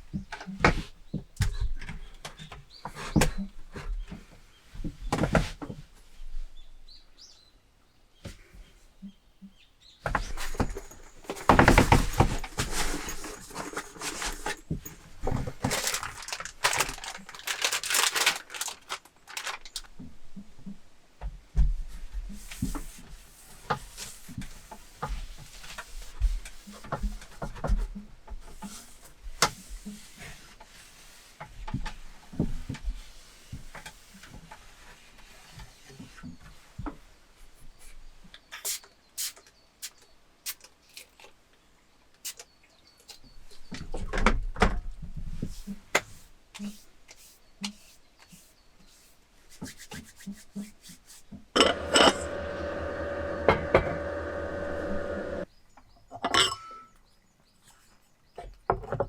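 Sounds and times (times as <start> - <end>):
rustling: 10.1 - 20.0.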